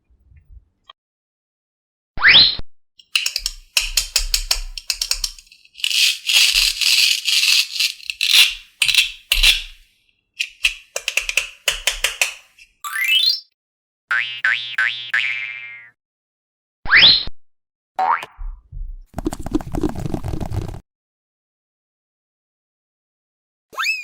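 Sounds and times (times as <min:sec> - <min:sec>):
rapid rattling and clicking: 0:03.0 - 0:09.8, 0:10.4 - 0:12.5.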